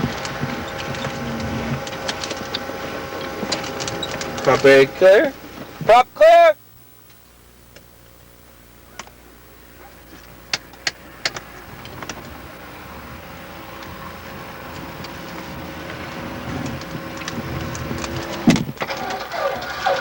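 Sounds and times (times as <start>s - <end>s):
aircraft piston engine starting: 0.0s - 6.0s, 10.1s - 20.0s.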